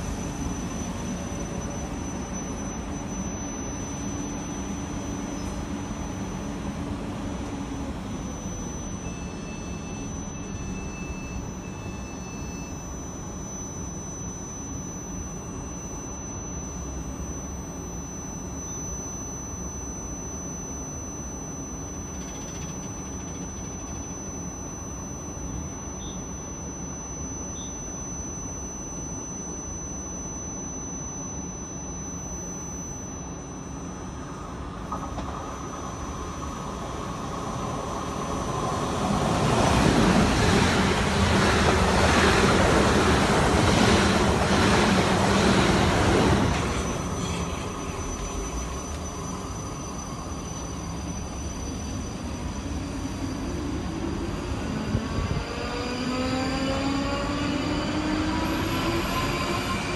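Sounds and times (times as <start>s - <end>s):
electric train rumbling: 0.0s - 13.9s, 34.1s - 59.9s
steady high-pitched tone: 0.0s - 59.9s.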